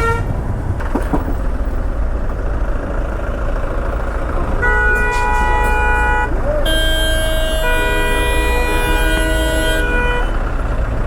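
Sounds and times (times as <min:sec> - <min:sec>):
car horn toot: 0:00.0 - 0:00.3, 0:04.6 - 0:10.5
vehicle engines idling: 0:00.0 - 0:11.0.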